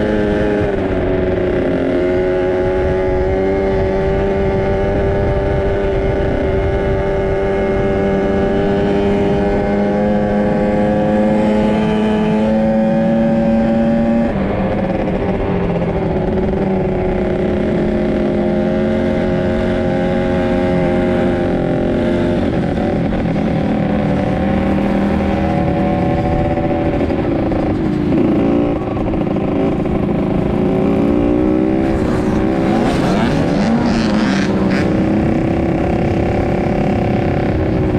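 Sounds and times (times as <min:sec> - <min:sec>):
dirt bike engine revving: 0:15.7 - 0:37.9.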